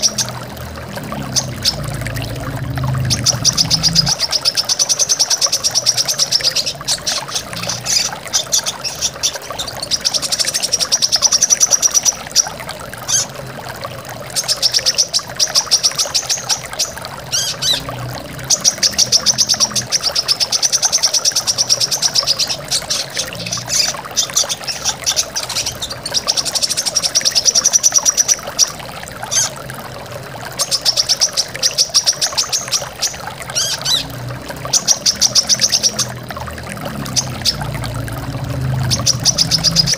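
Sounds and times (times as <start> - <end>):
waterfall rushing: 32.8 - 39.9.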